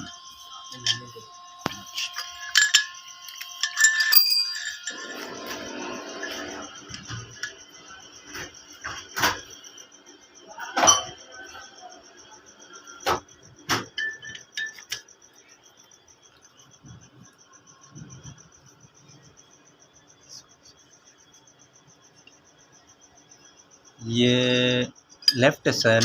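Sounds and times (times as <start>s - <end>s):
crickets chirping: 0.0s - 26.0s
metal tools clinking: 0.7s - 7.6s, 13.8s - 15.0s.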